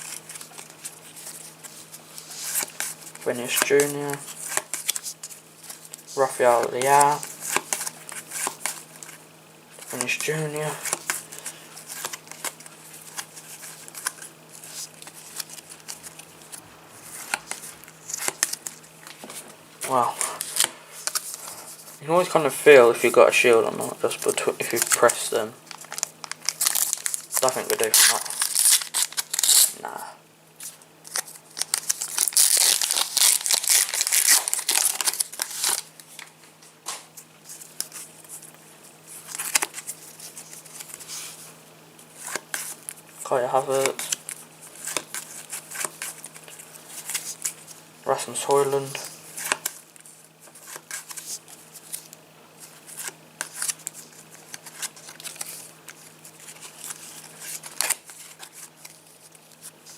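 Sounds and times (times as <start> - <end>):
trading cards clicking and rustling: 0.0 - 9.2, 9.8 - 29.7, 30.6 - 38.5, 39.2 - 41.4, 42.2 - 47.6, 48.5 - 59.9
wrapper tearing and crinkling: 24.1 - 29.9, 30.6 - 36.3, 39.2 - 41.0, 48.8 - 59.9.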